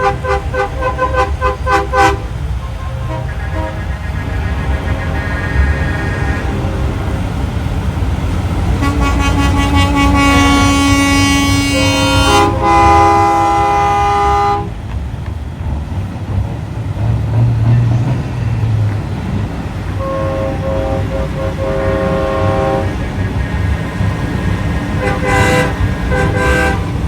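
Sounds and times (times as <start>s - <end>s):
truck air horns blowing: 0.0s - 7.7s, 8.6s - 14.8s, 20.0s - 23.1s, 24.9s - 27.0s
truck engines rumbling: 0.0s - 27.0s.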